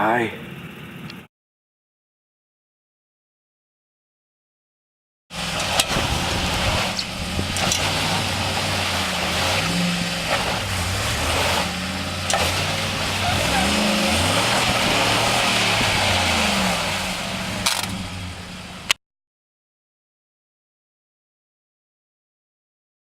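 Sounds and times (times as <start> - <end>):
engine revving: 5.3 - 19.0.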